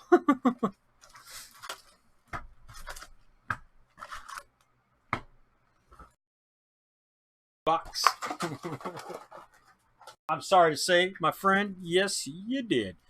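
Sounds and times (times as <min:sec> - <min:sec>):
packaging rustling: 0:08.0 - 0:10.2.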